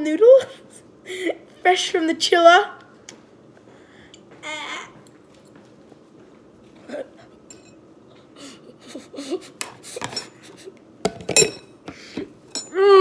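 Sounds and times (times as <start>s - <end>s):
cutlery clinking against a dish: 7.5s - 7.8s, 10.0s - 11.7s, 12.5s - 12.8s.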